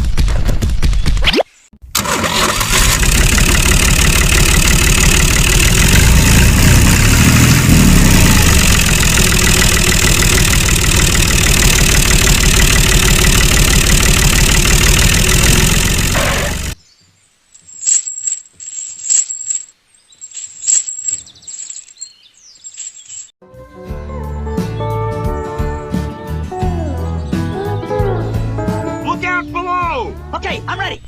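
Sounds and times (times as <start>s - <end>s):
small engine running: 2.0s - 16.8s.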